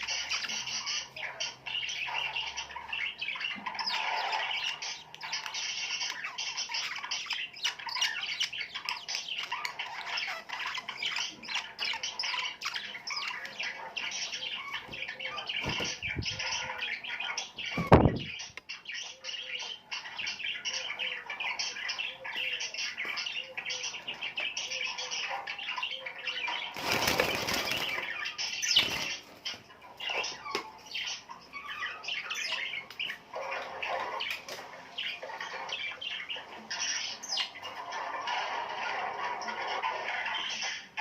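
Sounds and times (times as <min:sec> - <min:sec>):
small birds chirping: 0:00.0 - 0:41.0
wings flapping: 0:26.7 - 0:28.1.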